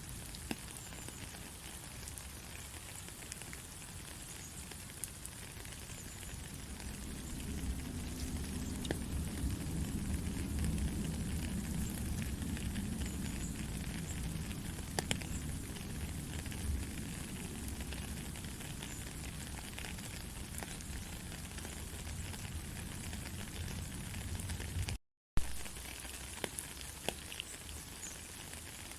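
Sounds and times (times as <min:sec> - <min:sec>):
gentle rain: 0:00.0 - 0:28.9
raindrops ticking: 0:00.0 - 0:28.9
low rumble: 0:06.5 - 0:16.9.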